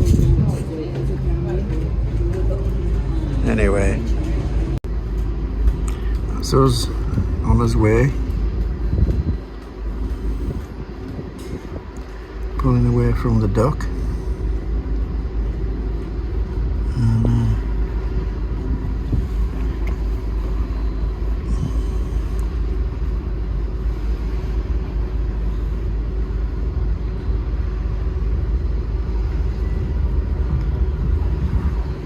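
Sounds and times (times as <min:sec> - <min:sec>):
wind buffeting microphone: 0:00.0 - 0:03.4, 0:04.0 - 0:13.2, 0:13.8 - 0:32.0
ship engine rumble: 0:00.0 - 0:32.0.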